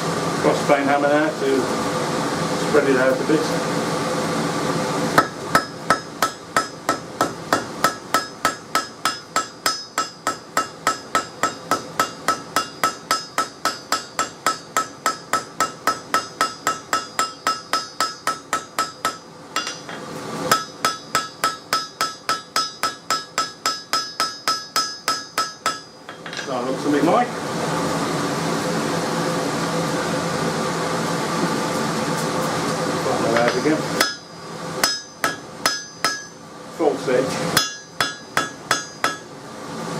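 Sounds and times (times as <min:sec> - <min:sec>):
hammer striking steel on anvil: 0:05.2 - 0:26.6, 0:33.3 - 0:36.4, 0:37.5 - 0:39.3.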